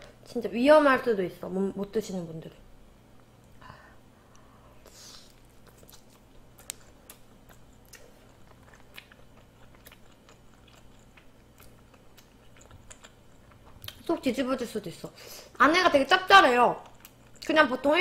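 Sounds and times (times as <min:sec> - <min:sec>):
person chewing: 0:04.2 - 0:14.1, 0:16.8 - 0:17.5.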